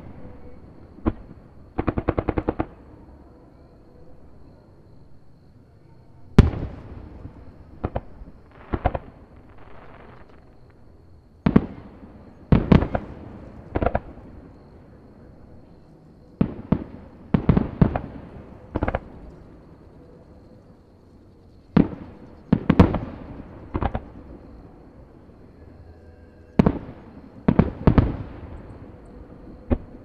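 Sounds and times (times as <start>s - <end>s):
fireworks booming: 0.0s - 2.8s, 6.4s - 10.8s, 11.4s - 14.9s, 16.4s - 19.8s, 21.7s - 24.7s, 26.6s - 30.0s.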